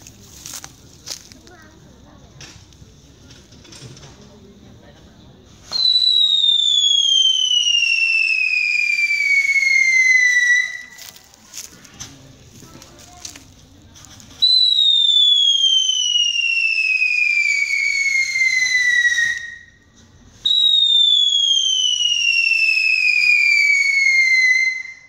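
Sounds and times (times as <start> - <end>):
whistling fireworks: 5.5 - 11.3, 14.3 - 25.0.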